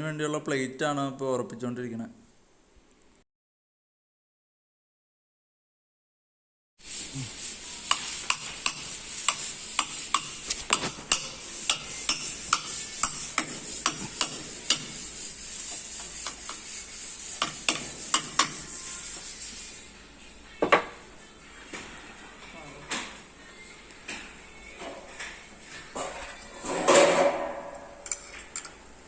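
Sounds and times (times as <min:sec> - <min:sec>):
arc welding sizzling hiss: 0:06.8 - 0:20.3
welding crackles and pops: 0:08.0 - 0:14.8.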